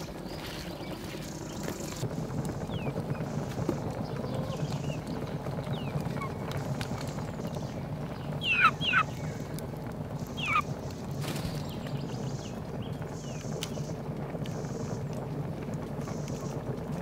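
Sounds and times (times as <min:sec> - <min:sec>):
steady low background noise: 0:00.0 - 0:17.0
bird calls falling in pitch: 0:08.4 - 0:09.4.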